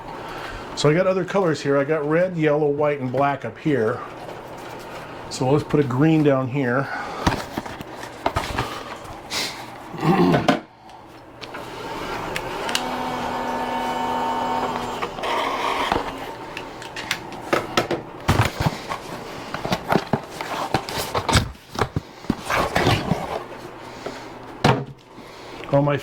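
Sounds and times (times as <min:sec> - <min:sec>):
filament feed motor running: 0:11.5 - 0:17.5.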